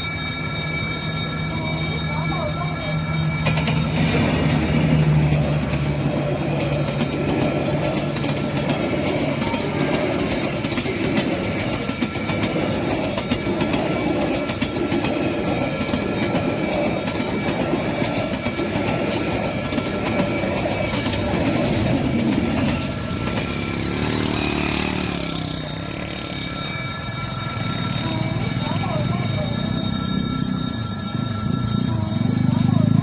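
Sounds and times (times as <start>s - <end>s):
train rumble: 0.0s - 33.0s
train wheels clacking over rail joints: 3.4s - 26.6s.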